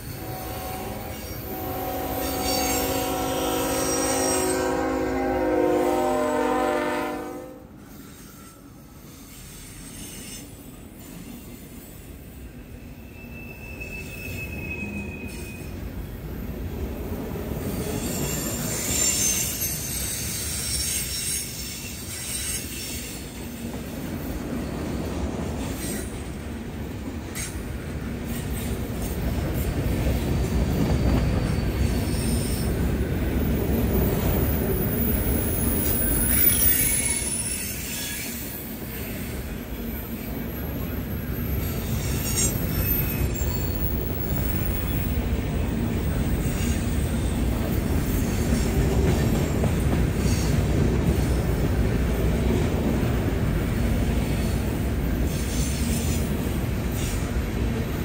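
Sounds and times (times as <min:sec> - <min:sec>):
high wheel squeal: 0:00.0 - 0:04.9, 0:12.5 - 0:16.0, 0:17.6 - 0:23.7, 0:30.7 - 0:32.9, 0:33.5 - 0:49.6
freight train wheels rumbling: 0:00.0 - 0:58.0.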